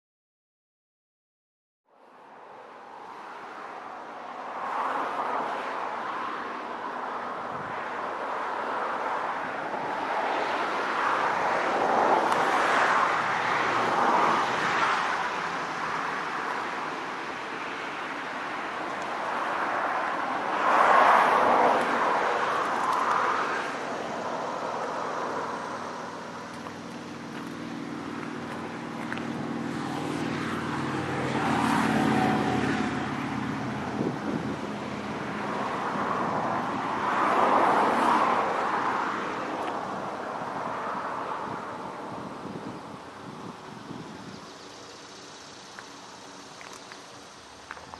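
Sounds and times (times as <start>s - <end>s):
low diesel hum: 23.8s - 31.5s.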